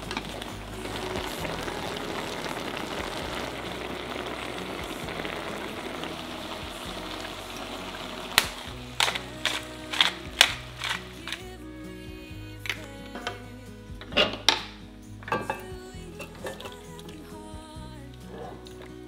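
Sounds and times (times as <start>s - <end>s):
vegetables sizzling in a pan: 0.0s - 11.4s
liquid simmering: 0.0s - 11.5s.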